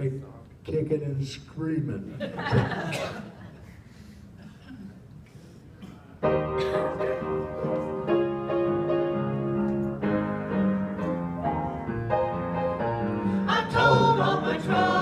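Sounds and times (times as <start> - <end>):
piano chords: 6.2 - 15.0.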